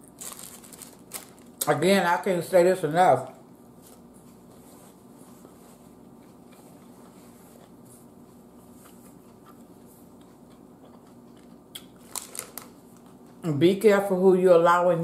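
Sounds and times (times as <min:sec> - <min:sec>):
low room hum: 0:00.0 - 0:15.0
person chewing quietly: 0:03.8 - 0:13.5.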